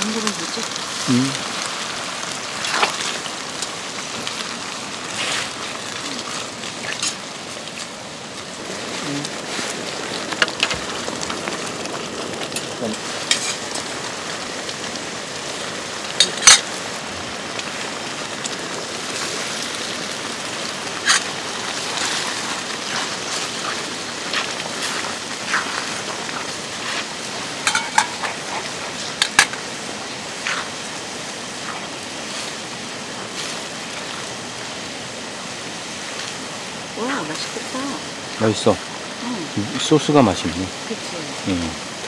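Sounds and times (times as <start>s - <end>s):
watery hiss: 0.0s - 42.0s
cutlery and dishes clinking: 13.3s - 13.9s, 16.2s - 16.8s, 27.6s - 29.6s.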